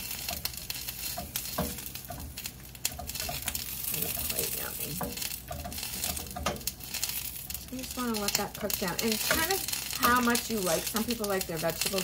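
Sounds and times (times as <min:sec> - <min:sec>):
vegetables sizzling in a frying pan: 0:00.0 - 0:12.0
sharp clicks and knocks: 0:04.9 - 0:06.8.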